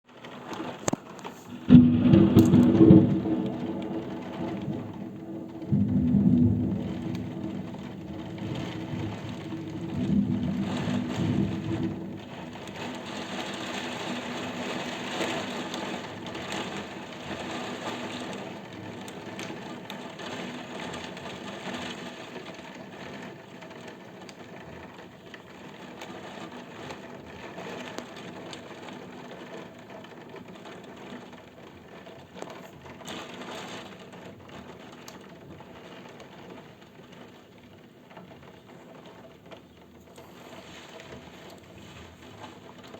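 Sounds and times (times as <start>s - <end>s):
rain falling: 0.0s - 42.9s
low rumble of thunder: 0.3s - 25.0s.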